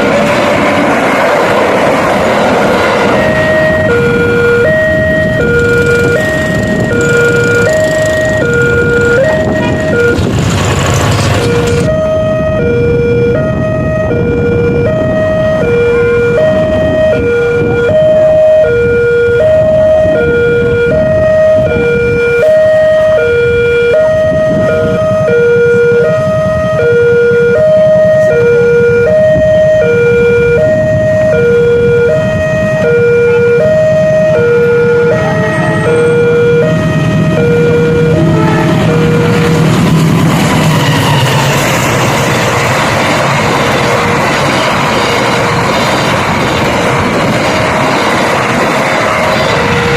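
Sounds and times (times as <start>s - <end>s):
low engine rumble: 0.0s - 49.9s
level crossing two-tone alarm: 2.2s - 10.4s, 11.4s - 39.7s.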